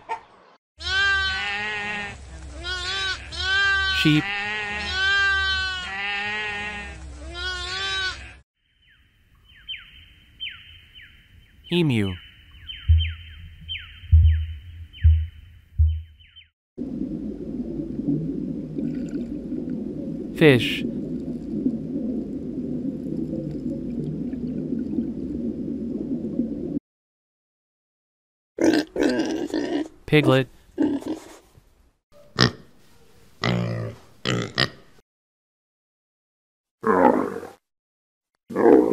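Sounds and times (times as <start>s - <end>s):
lambs bleating: 0.8s - 8.4s
muffled underwater stream rush: 16.8s - 26.8s.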